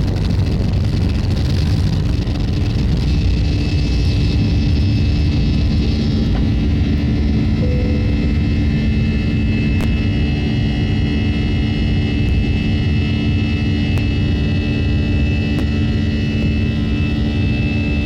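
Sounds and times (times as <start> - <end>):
jet engine cabin rumble: 0.0 - 18.0
faint high tone: 7.4 - 9.0.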